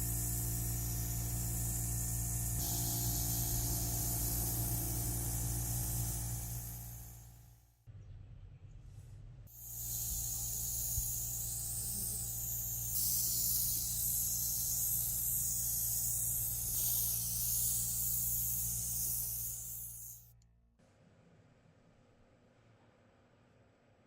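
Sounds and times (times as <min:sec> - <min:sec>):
compressed air hissing: 0:00.0 - 0:07.5, 0:09.5 - 0:20.3
low motor hum: 0:00.0 - 0:08.4, 0:09.6 - 0:20.0.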